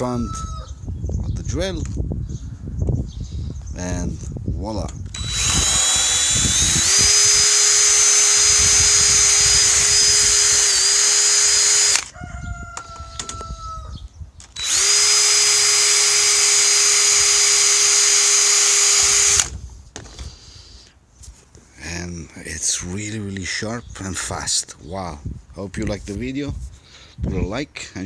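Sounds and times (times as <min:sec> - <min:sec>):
rooster crowing: 0:00.0 - 0:00.8, 0:12.0 - 0:14.0
electric drill grinding chain: 0:05.1 - 0:12.2, 0:14.6 - 0:19.5.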